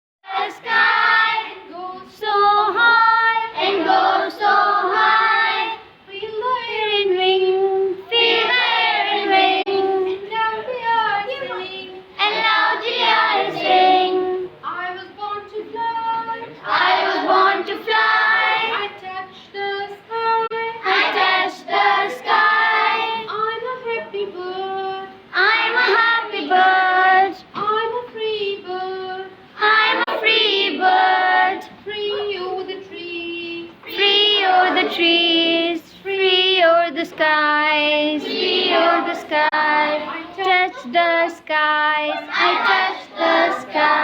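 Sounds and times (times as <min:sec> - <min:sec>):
children singing: 0:38.0 - 0:41.3, 0:42.0 - 0:44.0.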